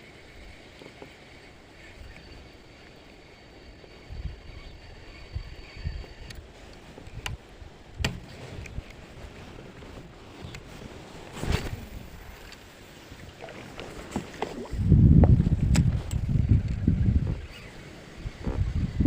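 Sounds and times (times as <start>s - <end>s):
low wind: 0.0s - 19.0s
knocks and clicks in a boat: 8.0s - 9.0s, 13.4s - 17.4s
rustling: 8.1s - 14.6s.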